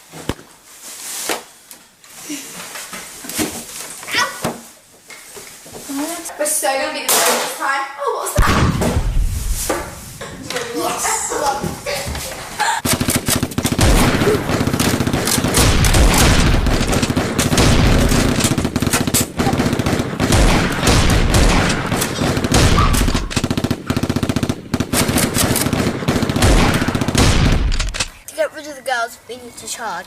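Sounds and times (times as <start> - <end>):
rapid gunfire: 12.8 - 28.2.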